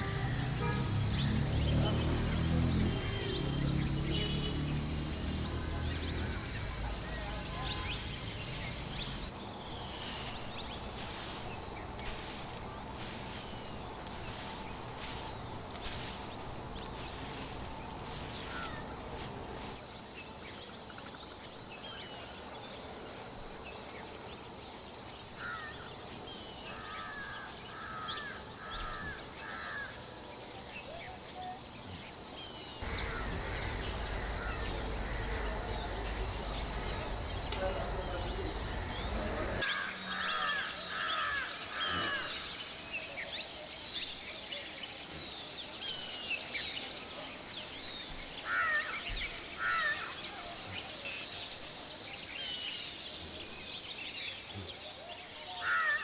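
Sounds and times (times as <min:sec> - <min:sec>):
crow cawing harshly: 0:32.9 - 0:35.6.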